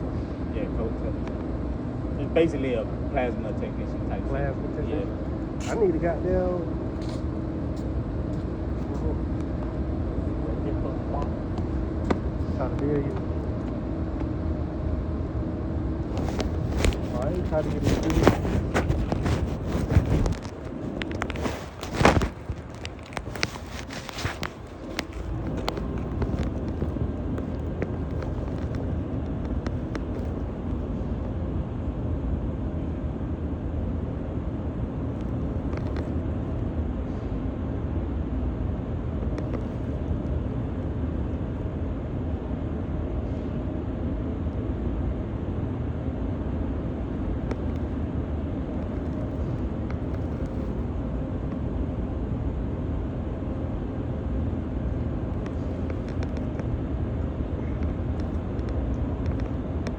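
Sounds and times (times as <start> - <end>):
car engine and road noise: 16.0 - 31.0.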